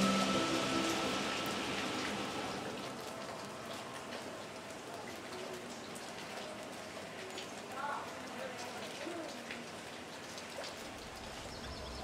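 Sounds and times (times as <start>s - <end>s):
background music: 0.0s - 2.8s
rain on wet pavement: 0.0s - 12.0s.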